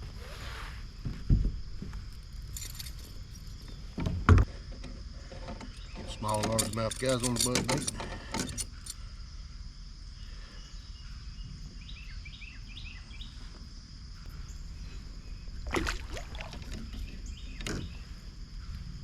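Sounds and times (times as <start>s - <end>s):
high insect drone: 0.0s - 19.0s
knocking clatter: 4.0s - 8.9s.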